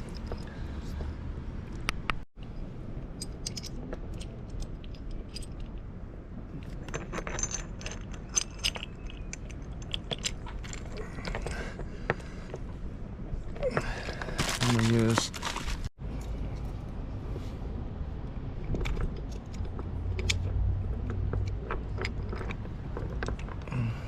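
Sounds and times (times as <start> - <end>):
small metal hardware clinking: 3.2 - 5.8, 6.6 - 11.5.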